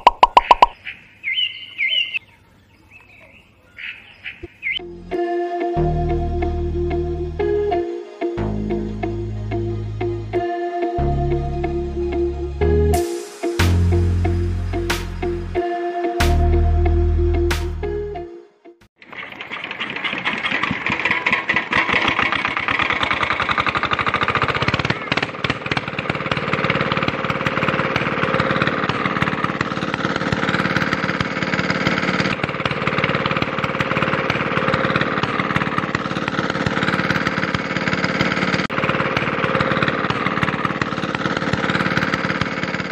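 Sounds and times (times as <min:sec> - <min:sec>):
small engine water pump chugging: 0:19.0 - 0:42.9.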